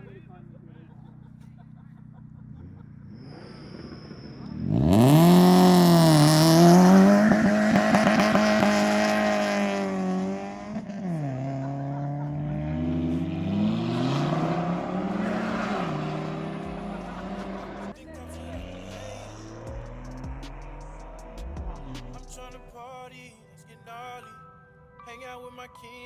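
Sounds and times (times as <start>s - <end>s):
car engine revving: 2.2s - 22.7s.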